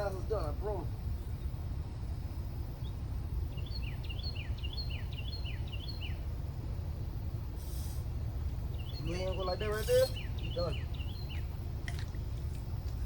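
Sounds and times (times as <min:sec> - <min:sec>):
steady low rumble: 0:00.0 - 0:13.0
songbird chirping: 0:02.8 - 0:06.3, 0:08.6 - 0:12.2.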